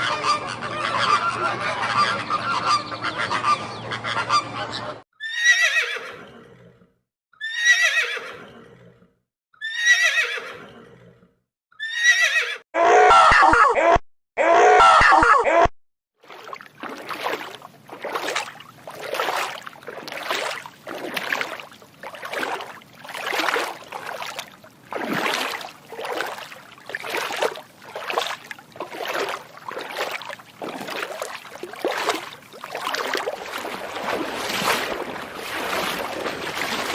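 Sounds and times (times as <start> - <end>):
water lapping: 16.2 - 36.9.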